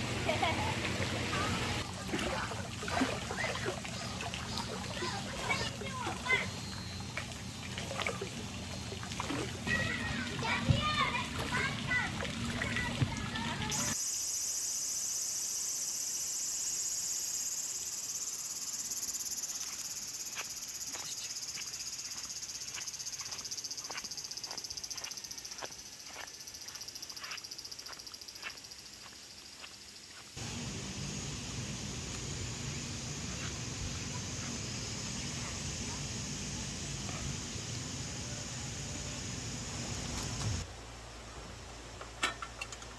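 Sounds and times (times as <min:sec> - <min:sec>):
insects chorus: 0:04.4 - 0:10.0, 0:13.7 - 0:40.6.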